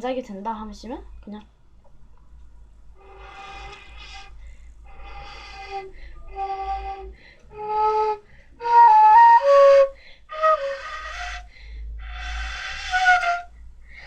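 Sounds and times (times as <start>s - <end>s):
breathy flute notes: 3.0s - 14.0s.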